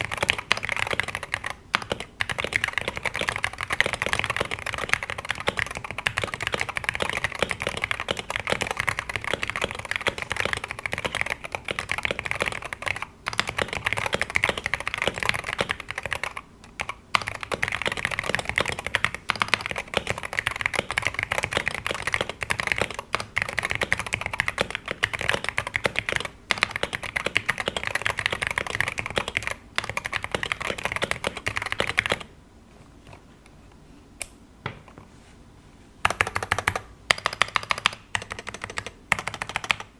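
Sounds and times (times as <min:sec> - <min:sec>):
keyboard typing: 0:00.0 - 0:32.3, 0:36.0 - 0:39.9.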